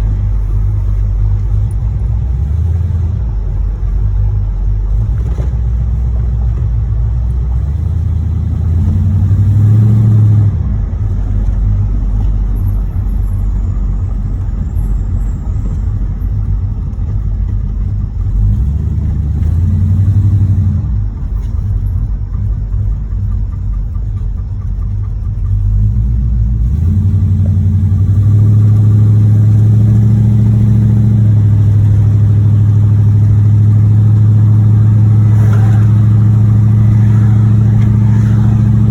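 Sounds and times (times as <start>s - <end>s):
car engine running: 0.0s - 38.9s
engine knocking: 0.0s - 38.9s.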